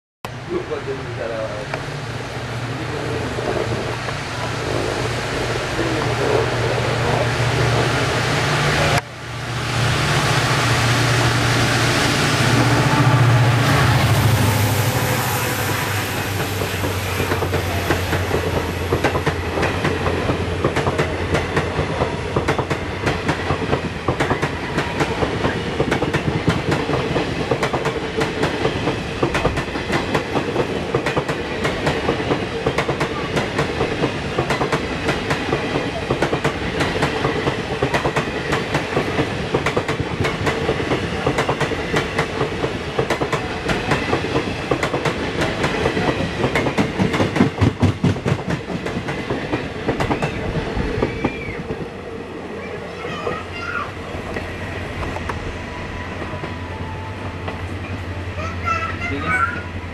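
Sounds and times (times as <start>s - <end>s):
steady rush of train noise: 0.2s - 59.9s
train wheels clattering: 15.5s - 51.9s.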